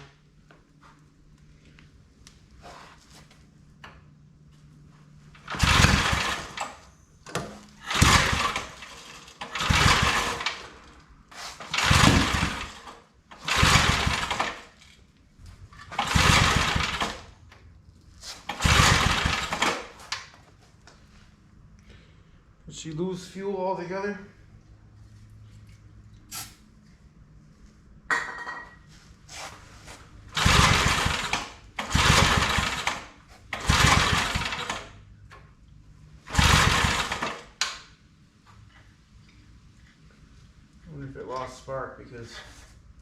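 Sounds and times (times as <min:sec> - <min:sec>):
engine pull-start cranking: 0:05.4 - 0:15.0, 0:15.7 - 0:17.6, 0:18.3 - 0:20.3, 0:30.3 - 0:35.5, 0:36.2 - 0:37.9.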